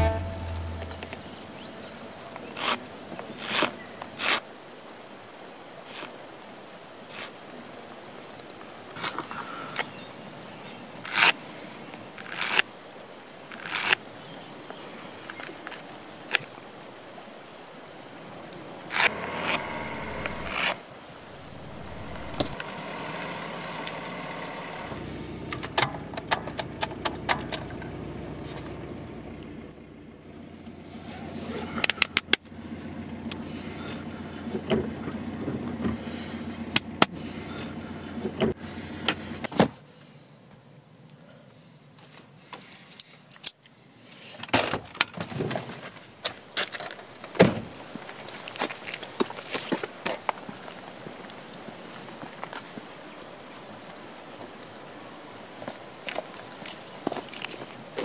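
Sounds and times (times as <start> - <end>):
short pitched tone: 0.0 - 1.8, 19.0 - 25.0
car cabin hum: 19.0 - 25.6
car keys jingling: 55.6 - 57.6.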